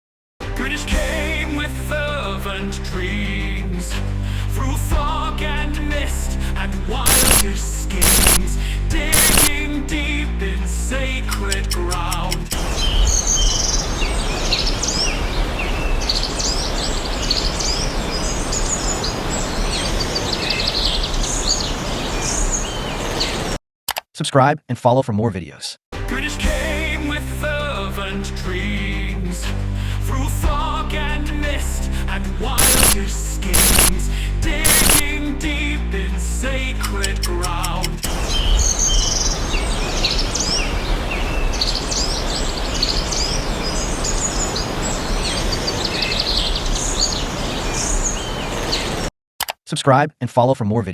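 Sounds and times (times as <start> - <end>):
birds chirping: 7.1 - 9.6, 12.7 - 23.6, 32.6 - 34.0, 38.2 - 49.1
steady rushing noise: 7.1 - 9.6, 32.6 - 34.0, 34.6 - 35.1.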